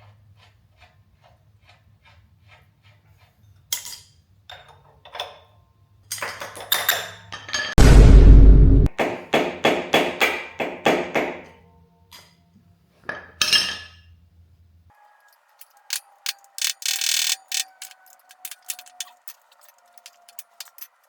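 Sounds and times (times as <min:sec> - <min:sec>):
short rush of noise: 0:07.8 - 0:08.9
metal clicks: 0:15.6 - 0:21.0
ratchet wrench clicking: 0:15.6 - 0:21.0.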